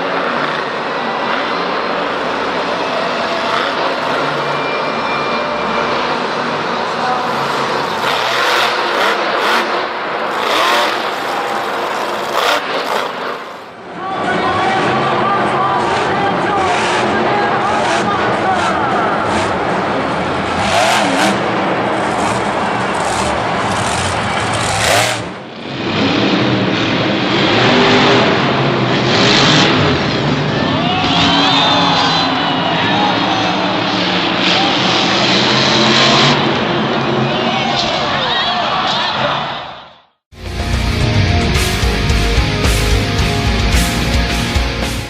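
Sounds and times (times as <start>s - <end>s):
truck engine revving: 0.0s - 13.8s, 15.9s - 31.7s.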